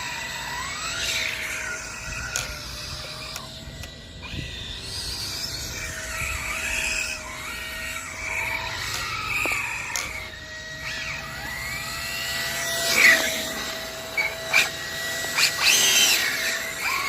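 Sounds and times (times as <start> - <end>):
electric motor whining: 0.0 - 17.0
wind and tyre noise: 0.7 - 12.2.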